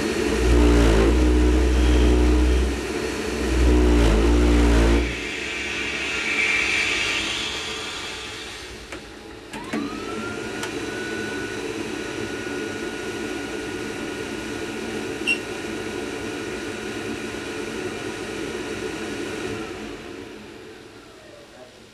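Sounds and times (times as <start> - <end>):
rushing rumble: 0.0 - 9.5
thin whine: 0.0 - 16.3.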